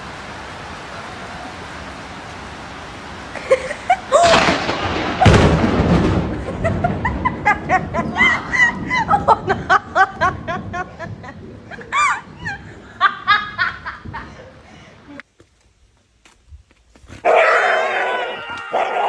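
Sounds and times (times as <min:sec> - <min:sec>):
people laughing: 0:03.4 - 0:04.6, 0:06.3 - 0:14.7.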